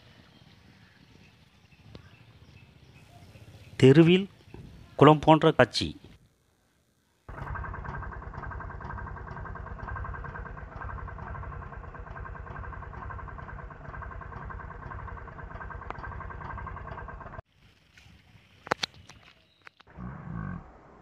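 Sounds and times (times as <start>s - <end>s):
engine idling with rapid pulse: 7.3s - 17.5s.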